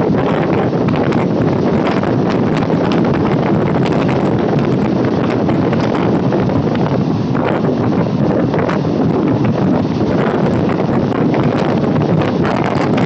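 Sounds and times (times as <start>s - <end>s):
train rumbling: 0.0s - 13.0s
wind on microphone: 0.0s - 13.0s.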